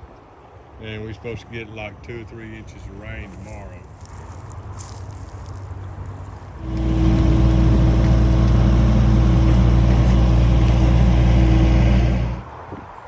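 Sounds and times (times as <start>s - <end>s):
engine running: 5.9s - 12.5s.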